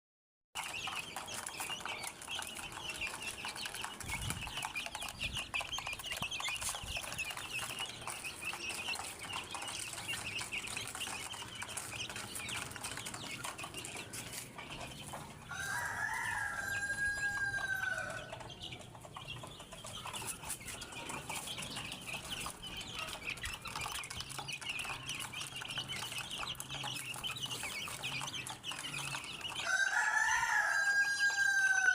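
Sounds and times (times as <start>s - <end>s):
chickens clucking: 0.6s - 31.9s
rooster crowing: 15.5s - 18.4s, 29.6s - 31.9s.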